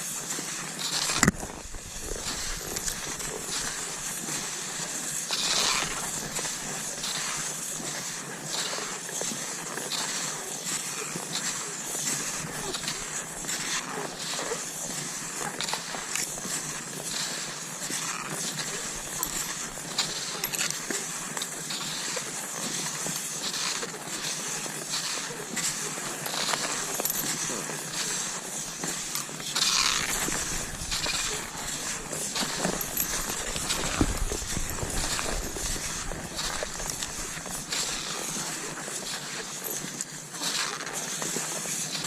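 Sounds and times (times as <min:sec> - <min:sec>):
ski poles scraping: 0:00.0 - 0:42.0
skis swishing over snow: 0:00.0 - 0:42.0.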